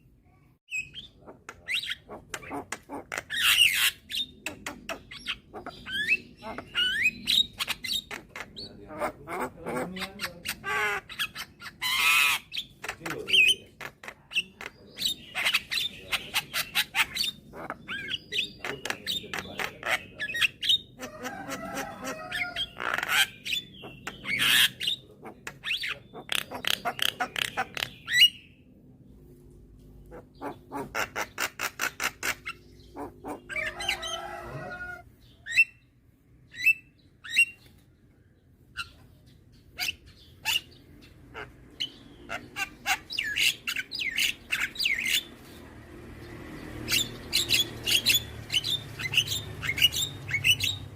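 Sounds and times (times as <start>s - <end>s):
myna clicks and squawking chatter: 1.0s - 28.3s, 30.0s - 35.6s.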